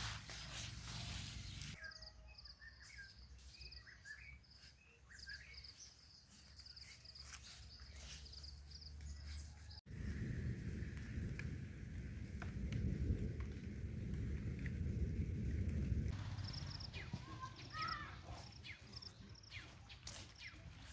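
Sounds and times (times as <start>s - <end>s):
birdsong trills and chirps: 0.7s - 9.8s, 16.2s - 20.9s.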